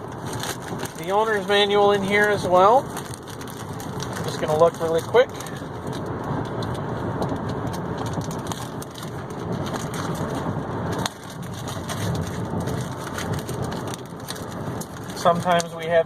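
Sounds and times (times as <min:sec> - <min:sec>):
paper and plastic rustling: 0:00.1 - 0:15.9.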